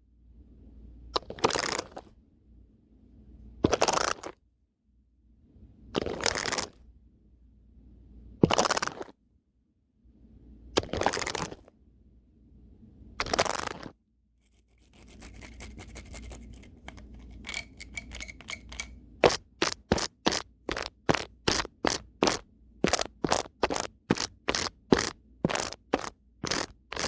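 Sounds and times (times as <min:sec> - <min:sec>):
brush scratching microphone: 0:14.7 - 0:17.6.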